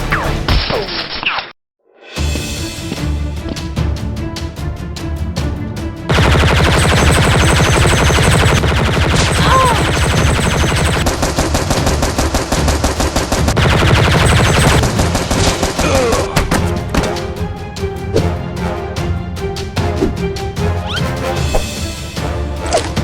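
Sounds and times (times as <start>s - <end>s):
rapid automatic gunfire effects: 6.1s - 16.4s.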